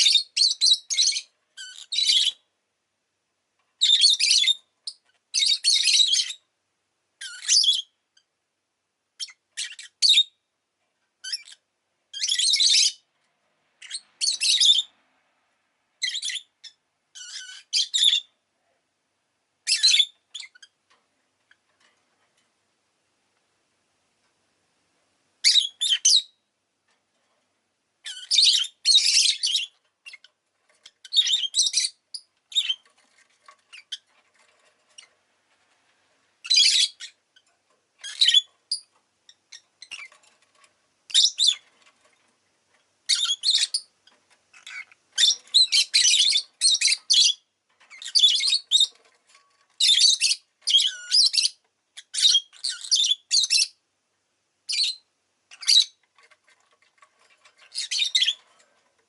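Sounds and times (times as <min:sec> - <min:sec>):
lovebird chirps and squawks: 0:00.0 - 0:02.4, 0:03.8 - 0:06.4, 0:07.2 - 0:08.3, 0:09.2 - 0:10.4, 0:11.2 - 0:13.1, 0:13.8 - 0:15.0, 0:16.0 - 0:18.4, 0:19.6 - 0:20.8, 0:25.4 - 0:26.4, 0:28.0 - 0:35.2, 0:36.4 - 0:41.9, 0:43.1 - 0:53.8, 0:54.7 - 0:58.6.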